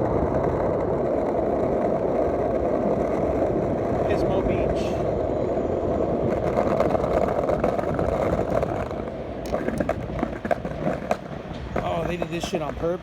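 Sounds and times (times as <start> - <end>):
skateboard wheels on cobblestones: 0.0 - 13.0
skateboard clacks and knocks: 6.2 - 13.0.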